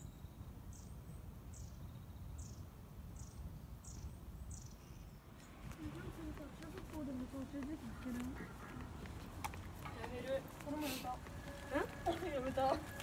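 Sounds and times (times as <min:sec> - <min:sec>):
small bird chirping: 0:00.0 - 0:05.8.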